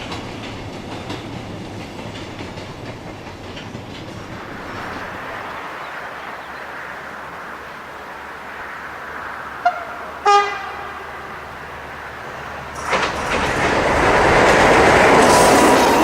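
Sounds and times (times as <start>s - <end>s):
train rumbling: 0.0s - 16.0s
locomotive horn blasts: 9.6s - 11.7s.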